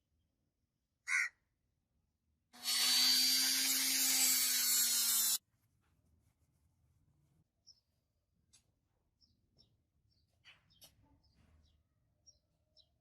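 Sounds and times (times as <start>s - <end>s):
handheld power tool running: 2.6s - 5.4s.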